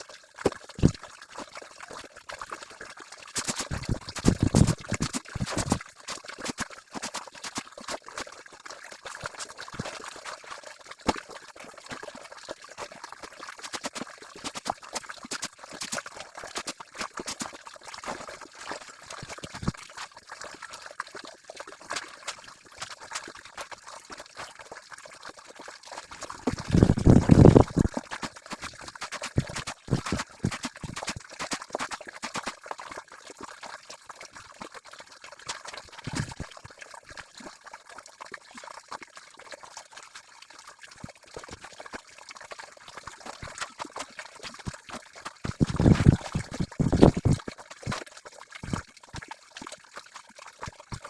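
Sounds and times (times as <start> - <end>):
water trickling and dripping: 0.0 - 51.0
water sloshing: 3.4 - 8.0, 26.3 - 32.4, 45.4 - 47.4.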